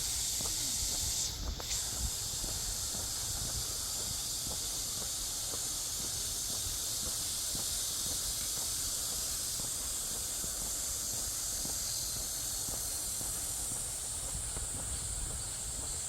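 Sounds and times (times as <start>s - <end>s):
cicadas high-pitched hiss: 0.0s - 16.0s.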